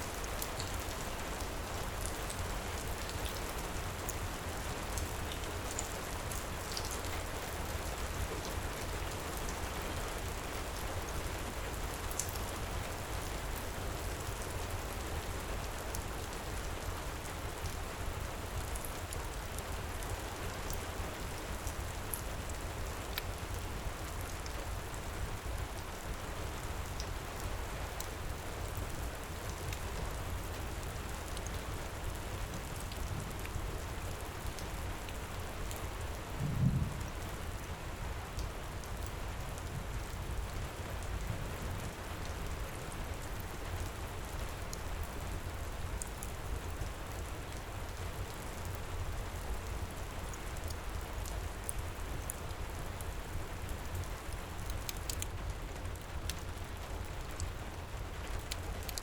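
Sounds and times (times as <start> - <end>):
wood fire crackling: 53.3 - 59.0.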